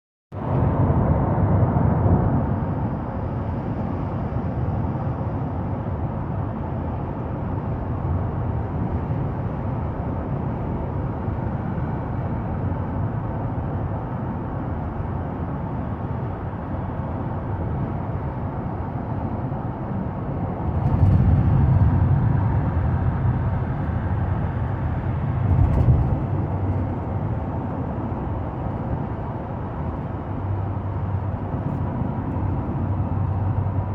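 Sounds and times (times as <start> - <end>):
road vehicle rumble: 0.3 - 33.9
vehicles passing: 20.0 - 33.9.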